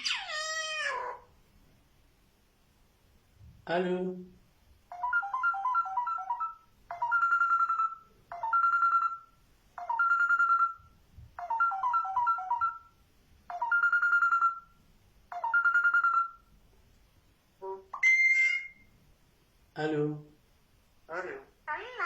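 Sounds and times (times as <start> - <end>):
bird imitating phone ringtone: 4.9 - 16.5, 17.9 - 18.9.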